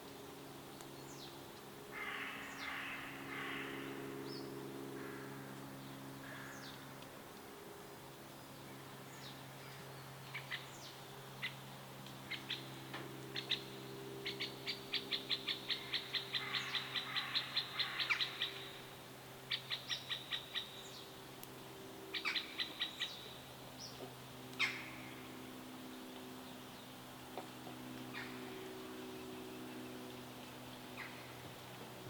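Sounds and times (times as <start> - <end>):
songbirds chirping in trills: 0.0 - 32.0.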